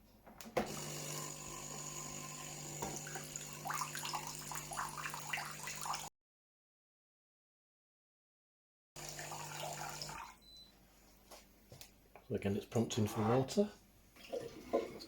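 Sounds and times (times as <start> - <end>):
coffee machine pump hum: 0.6 - 6.0, 9.0 - 10.3.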